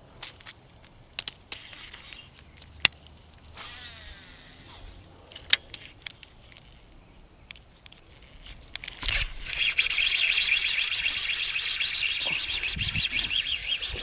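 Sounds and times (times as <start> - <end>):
fishing reel whirring: 3.6 - 4.7, 9.0 - 14.0.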